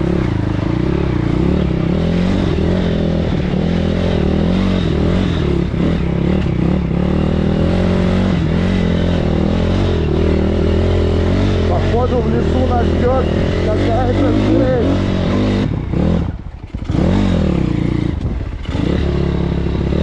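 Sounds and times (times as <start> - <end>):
motorbike engine running: 0.0 - 20.0
person talking: 11.6 - 15.4.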